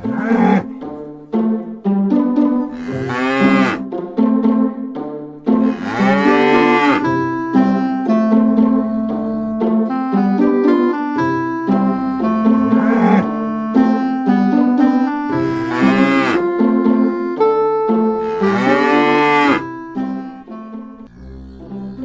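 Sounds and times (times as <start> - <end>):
cow mooing: 0.0 - 0.8, 2.7 - 3.9, 5.6 - 9.8, 12.2 - 14.0, 15.2 - 16.6, 18.0 - 19.9, 21.0 - 22.0
piano-like background music: 0.0 - 22.0.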